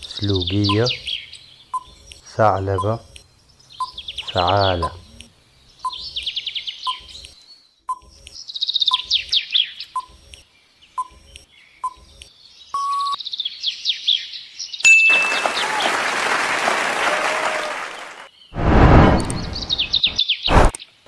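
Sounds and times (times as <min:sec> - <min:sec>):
birdsong chirping: 0:00.0 - 0:15.9, 0:17.6 - 0:21.0
timer ticking: 0:04.8 - 0:05.3
loud even rushing noise: 0:18.6 - 0:20.7.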